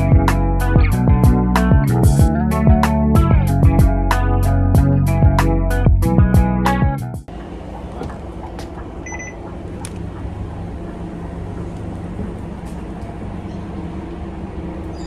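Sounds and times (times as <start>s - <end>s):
bus diesel engine hum: 7.3s - 15.0s
click: 9.8s - 10.2s.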